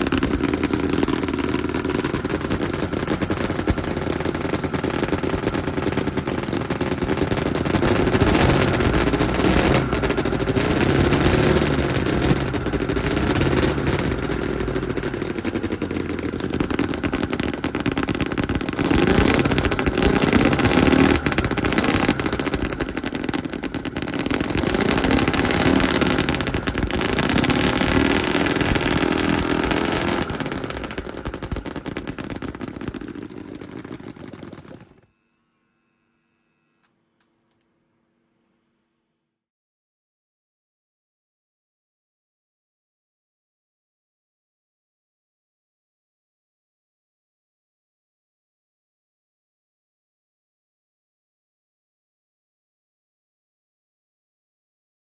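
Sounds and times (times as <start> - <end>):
model engine revving with clatter: 0.0 - 35.1.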